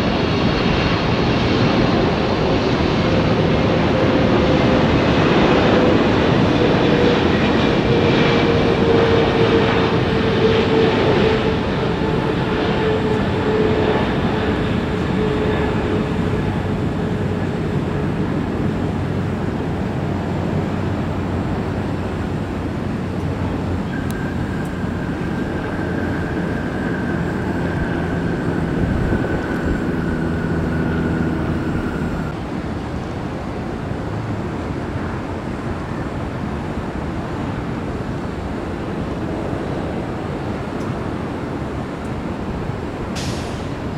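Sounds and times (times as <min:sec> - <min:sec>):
jet engines rushing and whining: 0:00.0 - 0:43.9
higher whine: 0:02.1 - 0:32.4.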